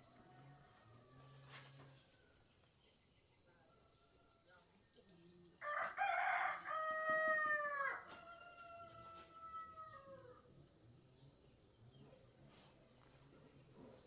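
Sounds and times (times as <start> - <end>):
rooster crowing: 5.6 - 10.2.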